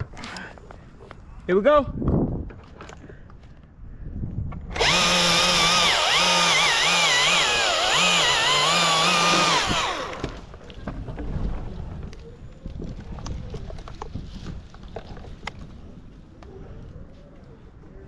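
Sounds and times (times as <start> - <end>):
chainsaw cutting wood: 4.7 - 10.5.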